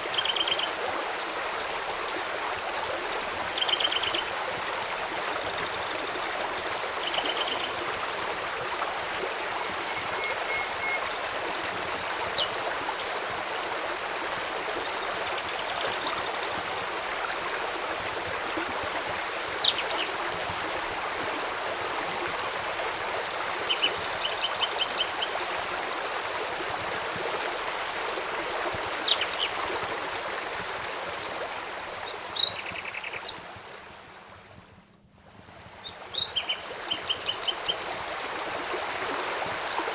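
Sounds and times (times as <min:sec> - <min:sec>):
river flowing: 0:00.0 - 0:34.6, 0:35.6 - 0:39.9
birds chirping and trilling: 0:10.1 - 0:12.5.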